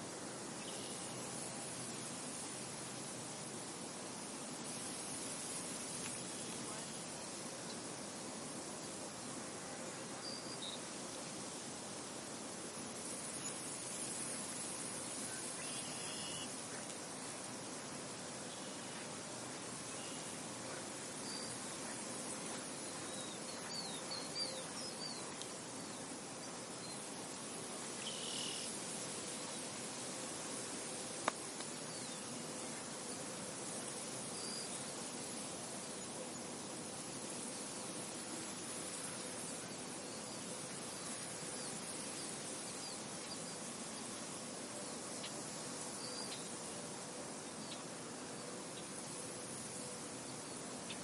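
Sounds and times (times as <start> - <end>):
soft steady wind: 0.0 - 51.0
faint high bird chirps: 15.3 - 16.5, 22.8 - 25.3.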